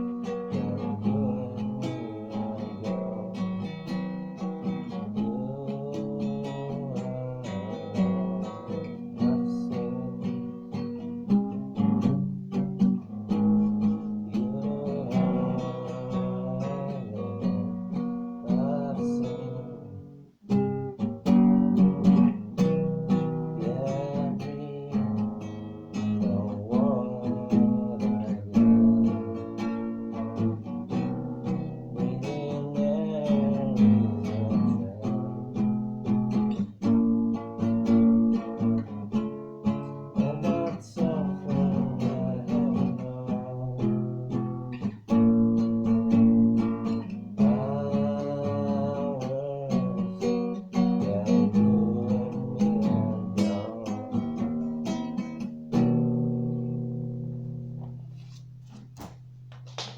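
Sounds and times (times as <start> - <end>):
acoustic guitar playing: 0.0 - 59.9.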